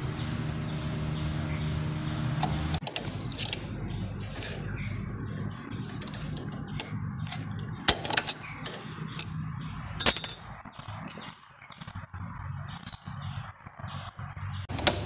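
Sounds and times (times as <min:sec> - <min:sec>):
tools clinking on engine parts: 0:02.8 - 0:04.7, 0:05.8 - 0:11.3
ringing metal clatter: 0:10.0 - 0:11.3.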